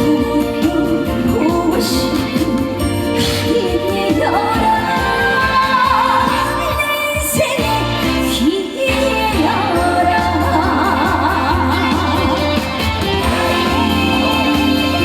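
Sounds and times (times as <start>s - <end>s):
band accompaniment with bass: 0.0s - 15.0s
woman singing with vibrato: 0.0s - 15.0s.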